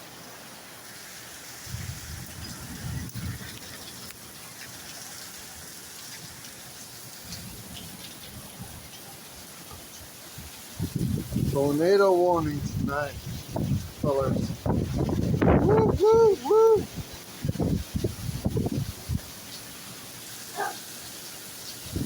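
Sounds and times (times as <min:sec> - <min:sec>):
heavy rain hiss: 0:00.0 - 0:22.0
wind buffeting microphone: 0:01.7 - 0:03.8, 0:10.3 - 0:19.3, 0:21.8 - 0:22.0.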